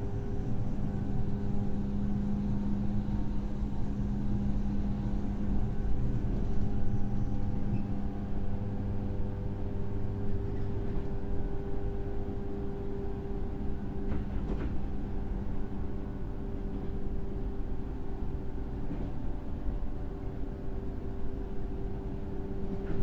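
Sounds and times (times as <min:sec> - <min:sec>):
electric train motor hum: 0:00.0 - 0:08.2
rail rumble: 0:00.0 - 0:08.6.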